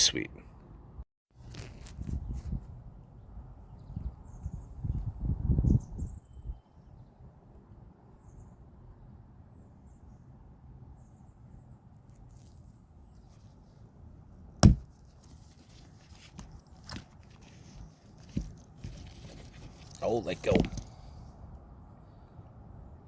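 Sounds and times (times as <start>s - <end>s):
handling and rustling noises: 1.4s - 2.6s, 14.7s - 21.2s
sharp knock: 14.6s - 14.9s.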